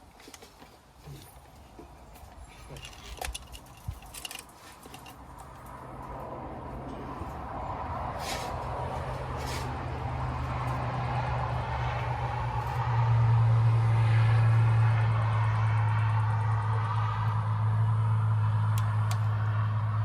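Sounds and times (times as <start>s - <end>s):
low engine drone: 5.7s - 20.0s
short hissy sounds: 8.2s - 8.6s, 9.4s - 9.8s.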